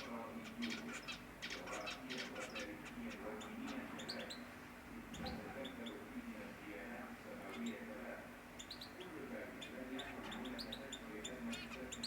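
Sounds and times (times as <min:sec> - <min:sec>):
canaries chirping: 0:00.0 - 0:04.5, 0:08.6 - 0:12.0.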